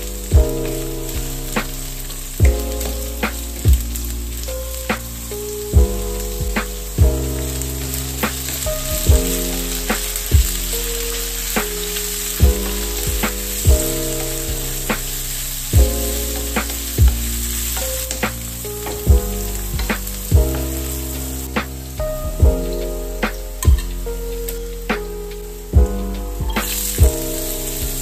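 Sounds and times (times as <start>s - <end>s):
background music with steady beat: 0.0s - 28.0s
green beans sizzling in a wok: 9.3s - 12.6s, 13.4s - 17.8s.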